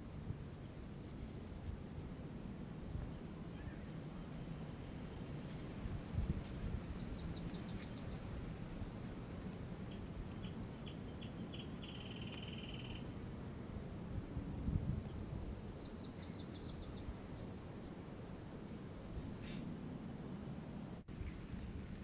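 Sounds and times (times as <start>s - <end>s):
low steady background rumble: 0.0s - 22.0s
small birds singing: 3.2s - 13.1s, 14.0s - 20.2s.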